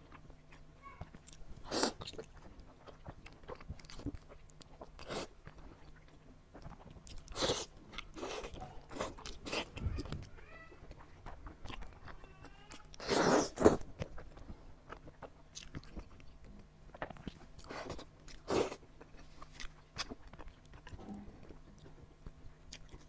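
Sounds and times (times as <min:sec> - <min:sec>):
biting and chewing: 0:00.0 - 0:23.0.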